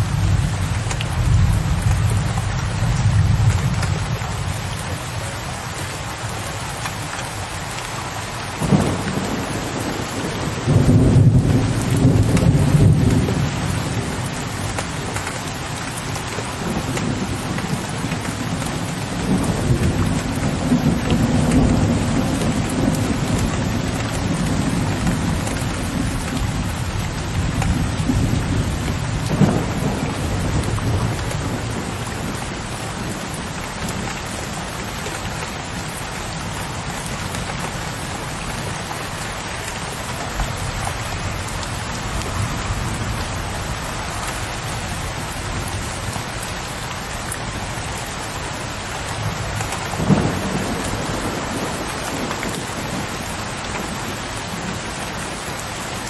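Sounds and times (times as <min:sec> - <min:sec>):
rain on a window ledge: 0:00.0 - 0:56.0
rolling thunder rumble: 0:08.6 - 0:15.4, 0:16.6 - 0:34.1, 0:49.3 - 0:54.8.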